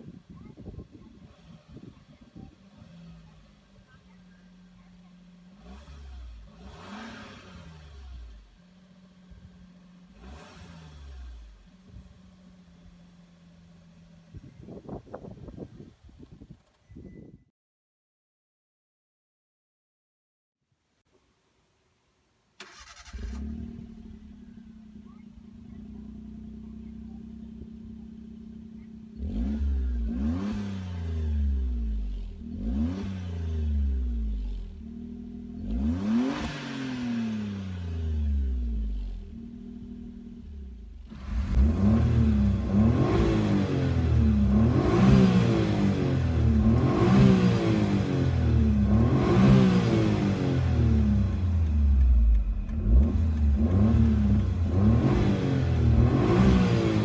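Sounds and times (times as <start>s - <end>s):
car engine idling and revving: 0.0s - 15.0s, 22.6s - 57.0s.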